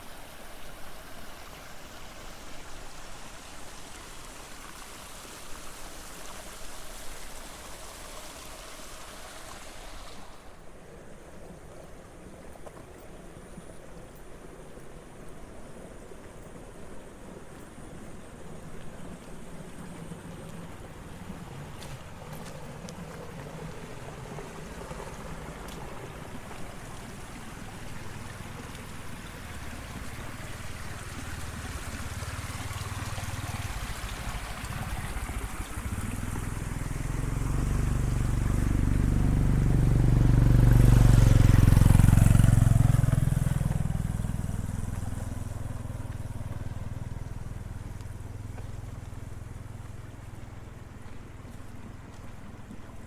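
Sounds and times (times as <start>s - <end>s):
vehicle passing by: 19.1s - 53.0s.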